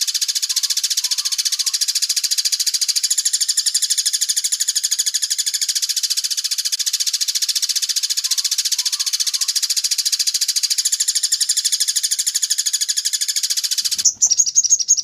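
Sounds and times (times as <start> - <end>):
bird rattling trill: 0.0 - 15.0.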